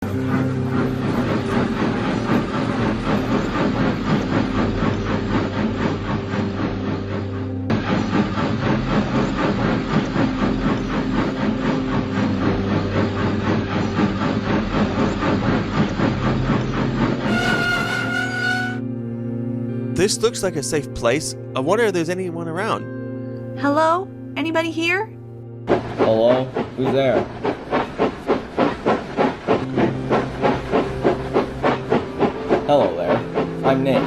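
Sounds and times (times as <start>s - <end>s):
steam locomotive chuffing: 0.0s - 18.8s, 25.7s - 34.0s
train running on rails: 0.0s - 18.9s, 19.6s - 22.7s, 25.6s - 34.0s.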